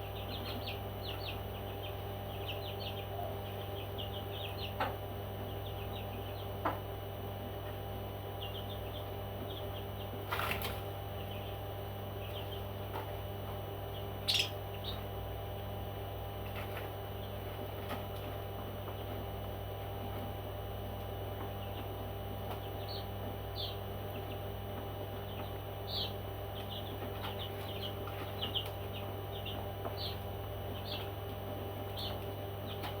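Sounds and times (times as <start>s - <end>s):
steady low hum: 0.0s - 33.0s
parrot chirping: 14.2s - 14.6s.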